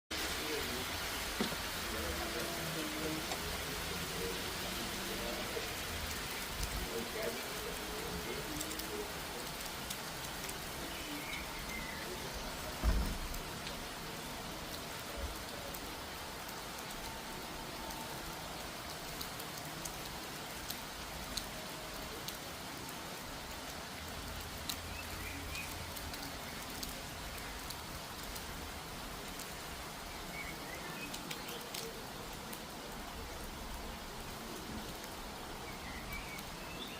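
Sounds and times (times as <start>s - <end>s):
rain pattering on surfaces: 0.1s - 36.9s
low thump: 12.8s - 13.4s.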